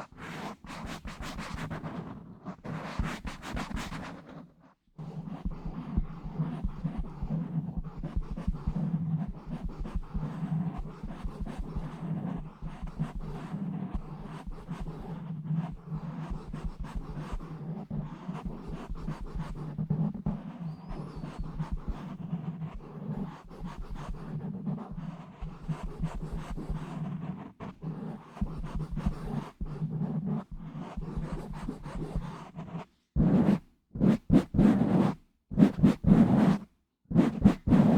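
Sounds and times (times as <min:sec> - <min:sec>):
scratching on microphone: 0:37.2 - 0:37.9.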